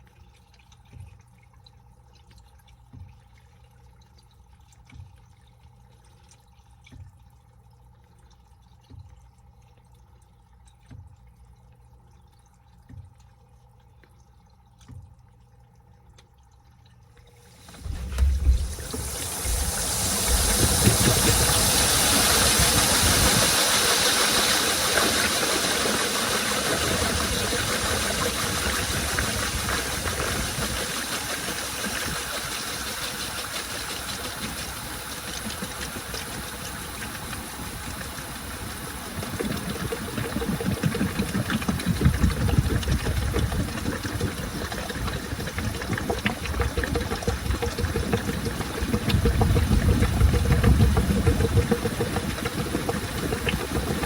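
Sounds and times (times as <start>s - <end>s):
water rushing into washing machine: 17.0s - 54.0s
washing machine drum motor: 17.2s - 54.0s
low thumping from turning drum: 17.7s - 23.9s, 45.9s - 54.0s.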